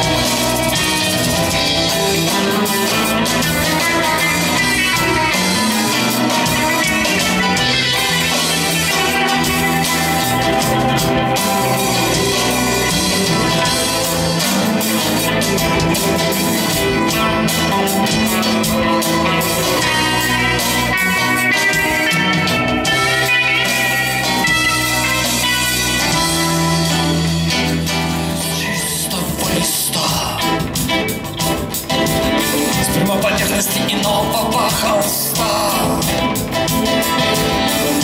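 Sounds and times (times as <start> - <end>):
band playing guitar and drums: 0.0 - 38.0.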